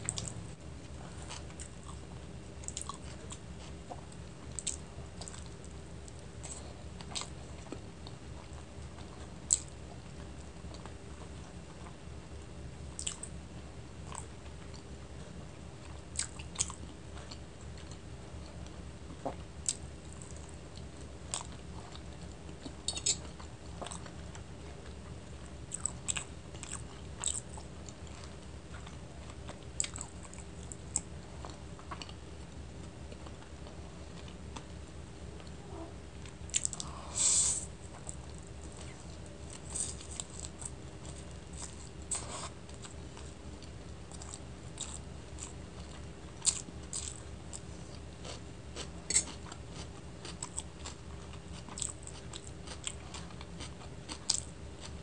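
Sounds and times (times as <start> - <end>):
chewing and wet mouth sounds: 0.0 - 12.0, 13.0 - 13.4, 15.8 - 34.8, 36.2 - 55.0
low hum: 17.0 - 48.1.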